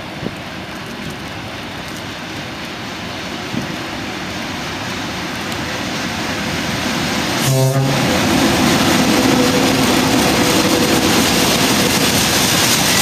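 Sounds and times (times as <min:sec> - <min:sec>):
freight train rumble: 0:00.0 - 0:13.0
steady rain hiss: 0:00.0 - 0:13.0.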